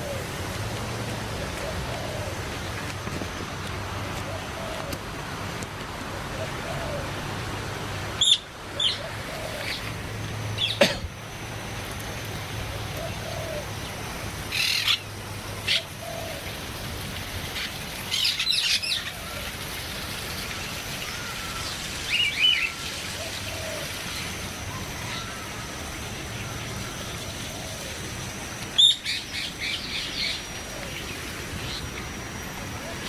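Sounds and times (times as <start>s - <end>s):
steady background hiss: 0.0s - 33.0s
low bird warbling: 8.2s - 10.0s, 12.7s - 13.9s.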